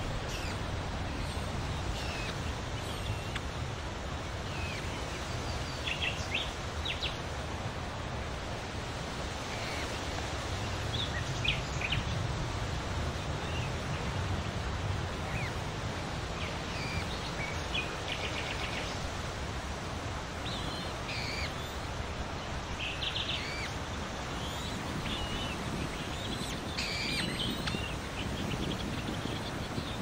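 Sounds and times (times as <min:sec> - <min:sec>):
outdoor noise hiss: 0:00.0 - 0:30.0.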